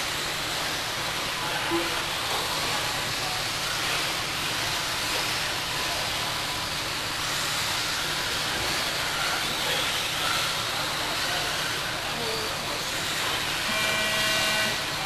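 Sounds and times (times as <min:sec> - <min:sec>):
faint motor whines: 0:00.0 - 0:15.0
hiss of motors and tyres: 0:00.0 - 0:15.0.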